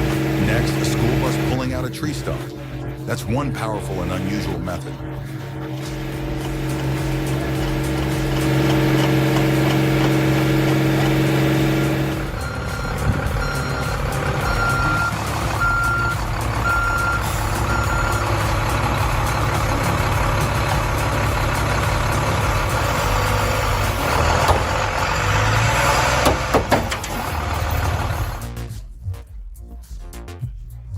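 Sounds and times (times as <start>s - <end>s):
vehicle engine running: 0.0s - 28.8s
reversing alarm beeps: 5.8s - 18.5s.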